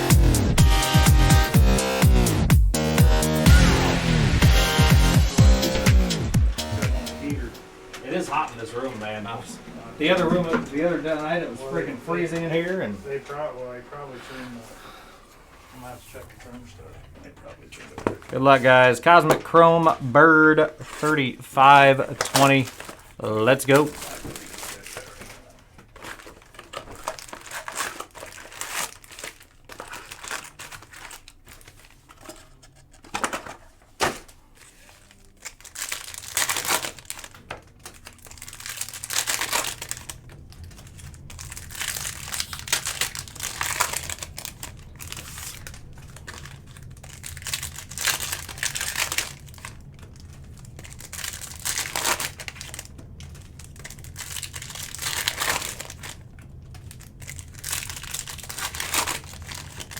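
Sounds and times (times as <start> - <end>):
low steady hum: 7.1 - 59.9
foil packs crinkling and tearing: 18.1 - 59.9.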